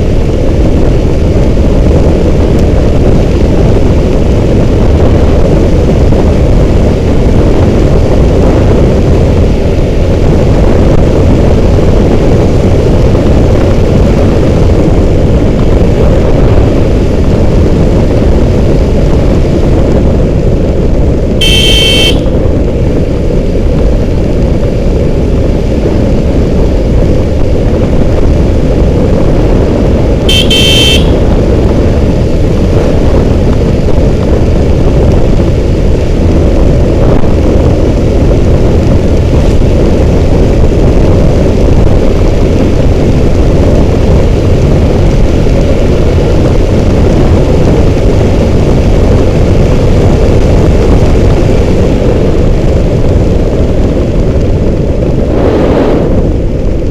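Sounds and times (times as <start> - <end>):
motorcycle engine rumble: 0.0 - 56.9
wind rush on microphone: 0.0 - 56.9
vehicle horn honking: 21.4 - 22.4, 30.3 - 31.3.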